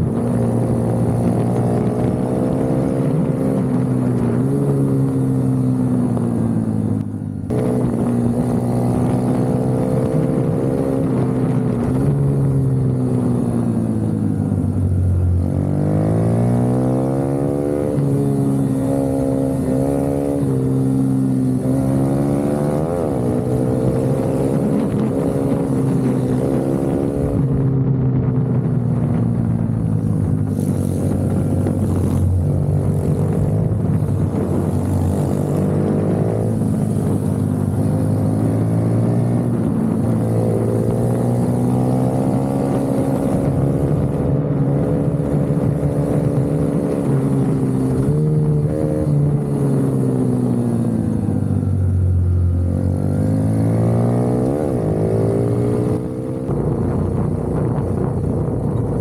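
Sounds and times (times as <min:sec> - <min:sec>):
minibike engine revving: 0:30.0 - 0:57.3.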